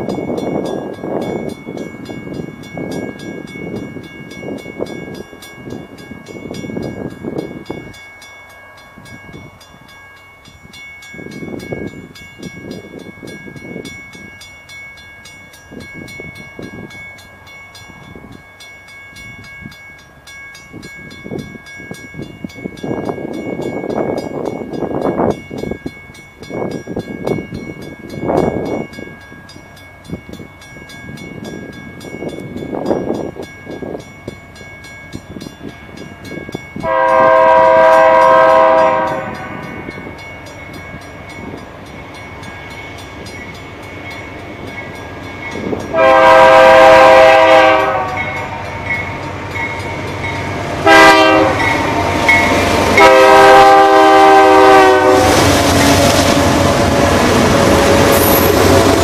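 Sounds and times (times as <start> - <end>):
approaching train rumbling: 0.0 - 59.0
locomotive air horn blasts: 36.8 - 39.7, 45.9 - 48.7, 50.8 - 52.1, 52.8 - 58.4.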